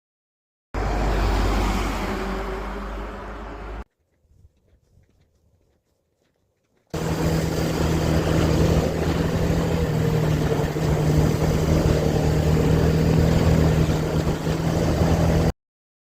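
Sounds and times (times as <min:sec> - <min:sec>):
wind and road noise: 0:00.8 - 0:15.5
motorcycle engine running: 0:06.9 - 0:15.5.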